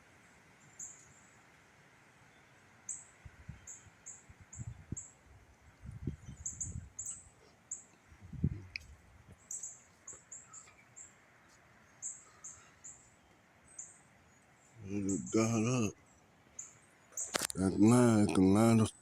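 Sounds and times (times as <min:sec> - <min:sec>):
wind buffeting microphone: 0:04.3 - 0:07.1, 0:08.1 - 0:09.4
birds chirping: 0:06.0 - 0:19.0.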